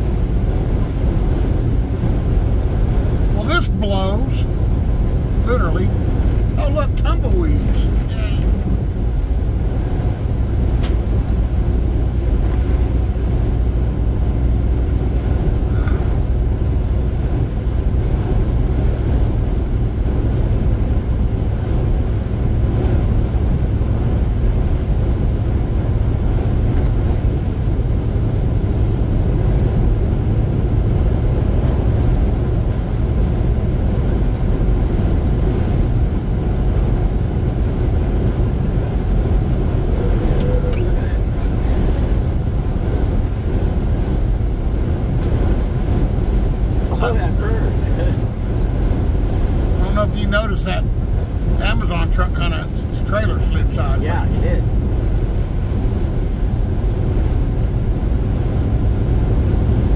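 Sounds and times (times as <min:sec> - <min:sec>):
road and wind noise: 0:00.0 - 0:59.9
vehicle driving rumble: 0:00.0 - 0:59.9
sharp click: 0:10.8 - 0:11.0.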